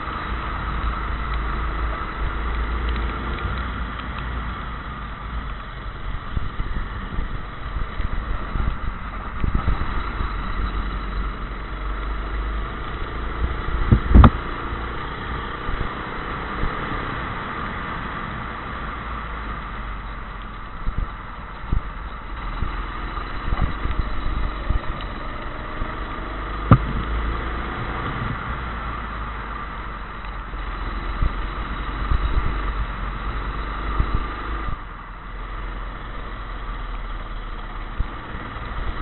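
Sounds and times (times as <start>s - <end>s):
go-kart engine running: 0.0s - 39.0s
sharp thump: 26.7s - 27.1s.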